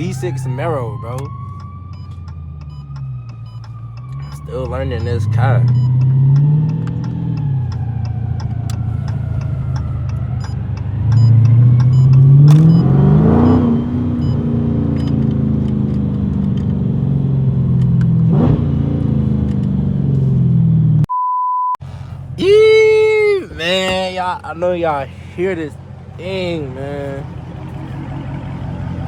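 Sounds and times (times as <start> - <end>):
car exhaust droning and revving: 0.0 - 21.1, 21.8 - 29.0
short steady beep: 2.7 - 6.0, 11.2 - 14.4, 21.1 - 21.8.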